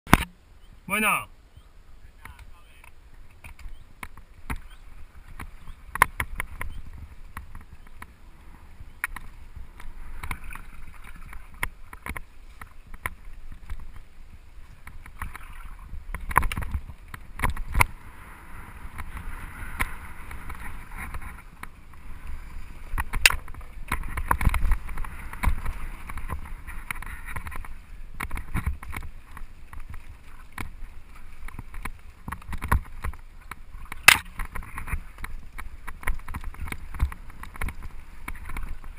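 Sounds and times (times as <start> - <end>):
bike tyres rolling over dirt: 3.2 - 38.9
bike knocking and rattling: 22.9 - 30.8, 31.4 - 38.9.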